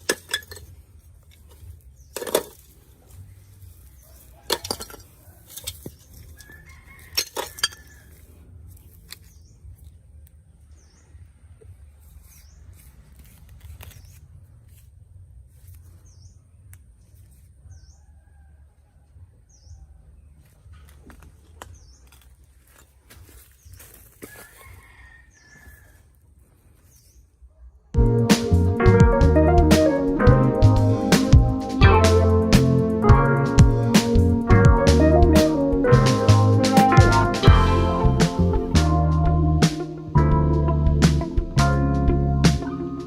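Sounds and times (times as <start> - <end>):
small tools clicking and clinking: 0.0 - 2.8, 4.4 - 8.1.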